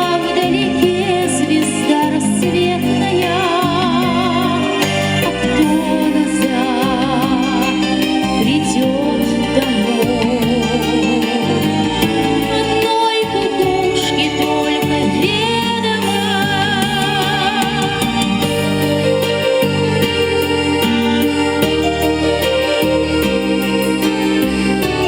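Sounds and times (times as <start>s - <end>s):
woman singing with vibrato: 0.0s - 20.7s
keyboard accompaniment: 0.0s - 25.0s.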